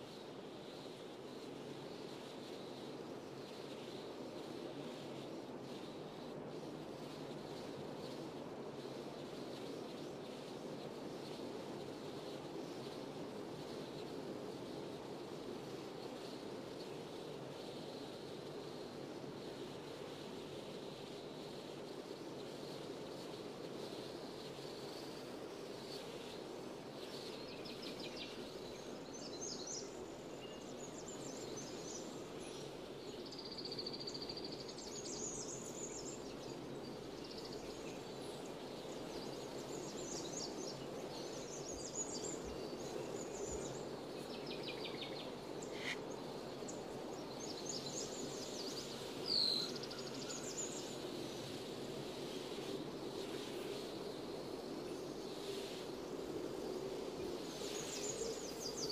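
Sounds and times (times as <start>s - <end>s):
songbirds chirping and trilling: 15.6s - 58.9s.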